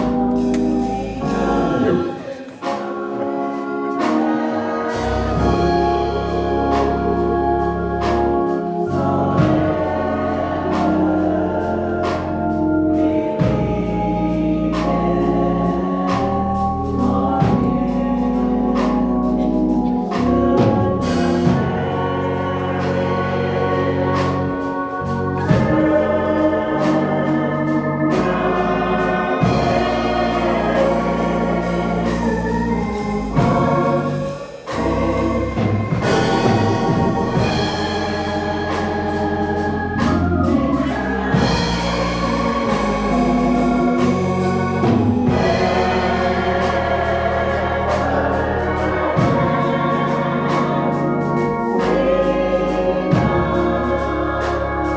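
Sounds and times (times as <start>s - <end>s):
choir singing: 0.0s - 54.9s
church organ chords: 0.0s - 54.9s.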